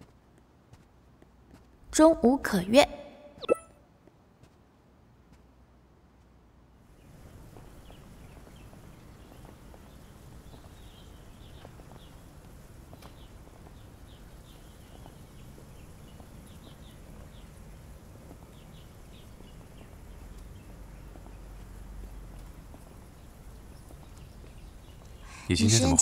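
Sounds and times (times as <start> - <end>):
small birds chirping: 6.8 - 26.0.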